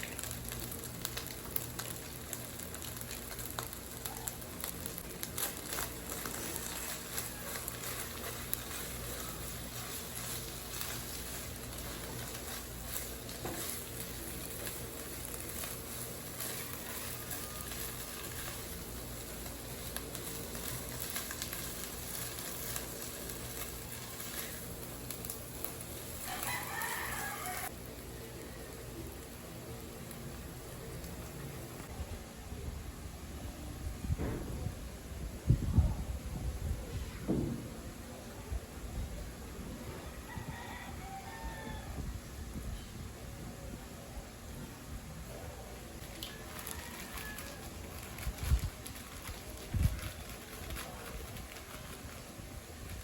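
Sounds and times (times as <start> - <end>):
food sizzling in a pan: 0.0 - 31.9.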